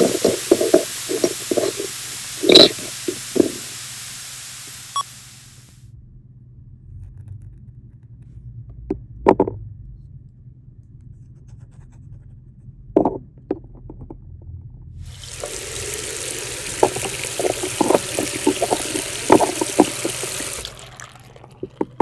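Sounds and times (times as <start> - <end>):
hiss: 0.0 - 5.8, 15.1 - 20.7.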